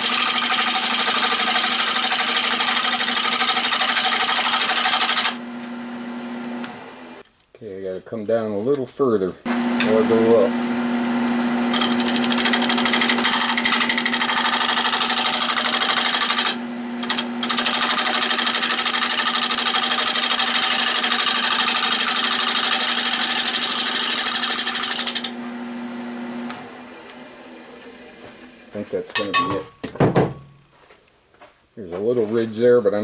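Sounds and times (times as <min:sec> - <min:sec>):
lathe motor hum: 0:00.0 - 0:07.2, 0:09.5 - 0:28.8.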